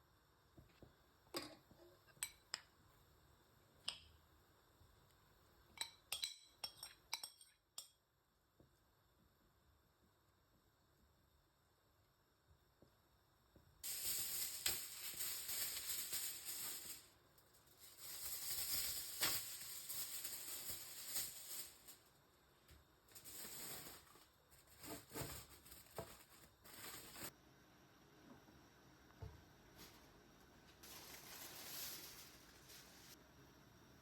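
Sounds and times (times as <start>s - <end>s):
food hissing in a pan: 13.8s - 22.1s.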